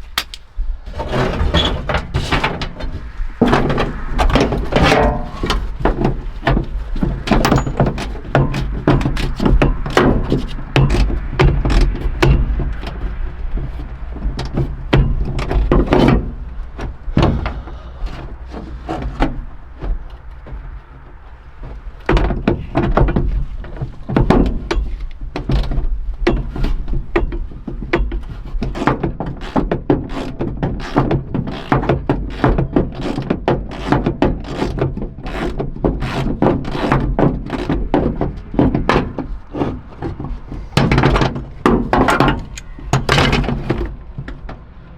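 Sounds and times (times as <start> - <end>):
steady low hum: 0.0 - 26.1
hand tools knocking on metal: 4.8 - 28.9.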